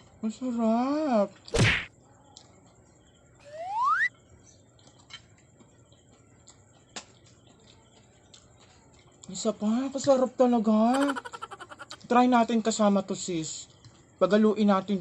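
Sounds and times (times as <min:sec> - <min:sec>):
rising whistle-like tone: 0:03.4 - 0:04.1.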